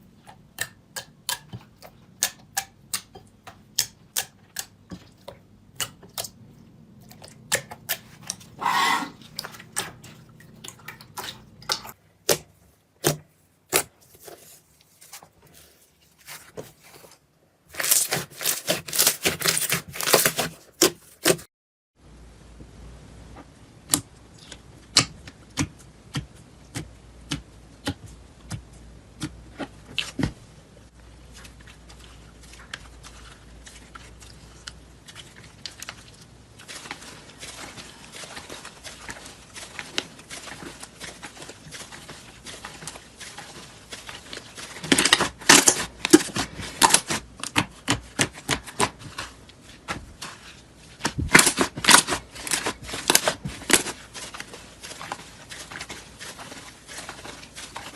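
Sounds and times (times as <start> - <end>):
slime clicking and crackling: 17.7 - 21.4, 31.4 - 57.9.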